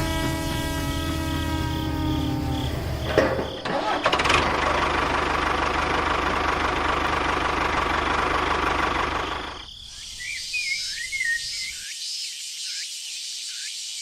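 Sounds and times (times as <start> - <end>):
small engine running: 0.0 - 9.7
birds chirping: 9.1 - 14.0.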